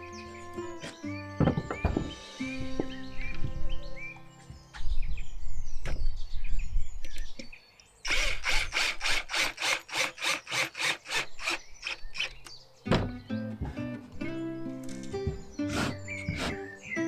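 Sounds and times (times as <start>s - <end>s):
hand saw cutting wood: 8.1s - 12.4s, 15.6s - 16.8s.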